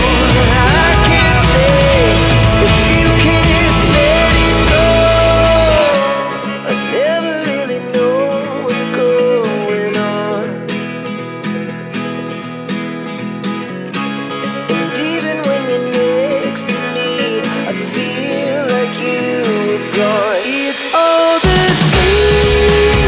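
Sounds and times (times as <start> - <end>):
heavy deep bass music: 0.0 - 5.9, 21.5 - 23.0
guitar-led music: 0.0 - 23.0
sharp percussion strokes: 19.1 - 23.0.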